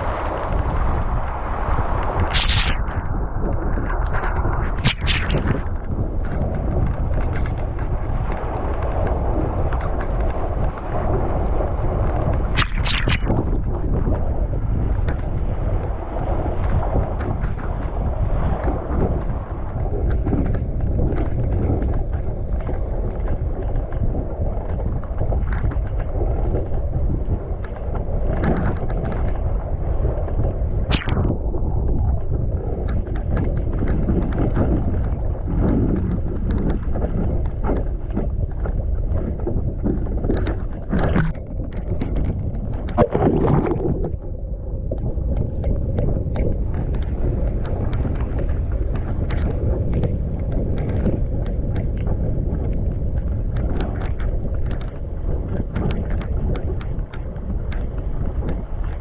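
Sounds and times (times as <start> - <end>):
water slapping against hull: 0.0 - 59.0
wind buffeting microphone: 0.0 - 59.0
sharp crack: 2.2 - 6.4, 12.5 - 13.7, 30.9 - 31.4, 40.5 - 42.3.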